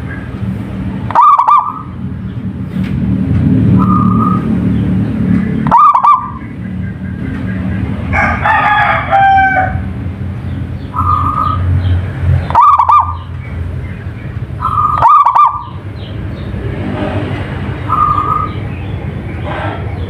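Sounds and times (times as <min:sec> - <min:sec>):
dove cooing: 0:01.1 - 0:01.9, 0:05.7 - 0:06.4, 0:11.0 - 0:11.6, 0:12.5 - 0:13.3, 0:14.6 - 0:15.8, 0:17.9 - 0:18.6
bird call with stacked pitches: 0:01.1 - 0:02.0, 0:05.5 - 0:07.7, 0:10.8 - 0:16.1.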